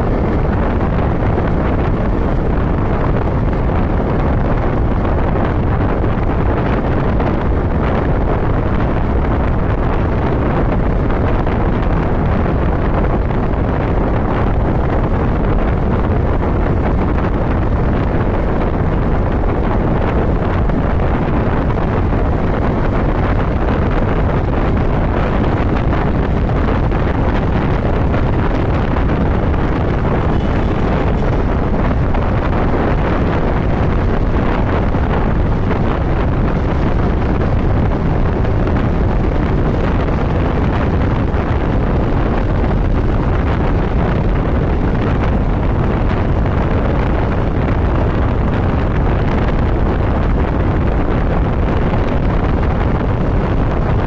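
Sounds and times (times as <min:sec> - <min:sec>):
wind rush over microphone: 0:00.0 - 0:54.0
motorcycle engine running: 0:24.8 - 0:41.4.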